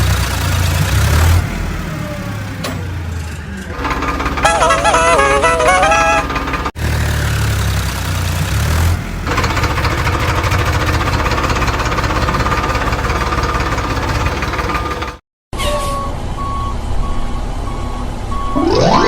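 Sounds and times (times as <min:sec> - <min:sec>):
tractor engine knocking: 0:03.7 - 0:07.1, 0:07.7 - 0:15.2.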